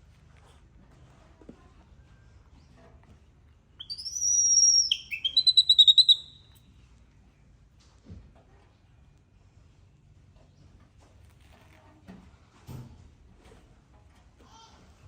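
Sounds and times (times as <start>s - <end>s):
bird singing trill: 3.8s - 6.6s.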